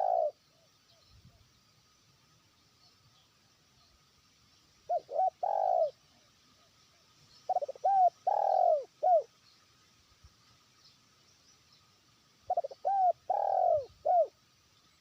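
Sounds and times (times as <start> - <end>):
dove cooing: 0.0 - 0.4, 4.9 - 6.0, 7.5 - 9.3, 12.5 - 14.4.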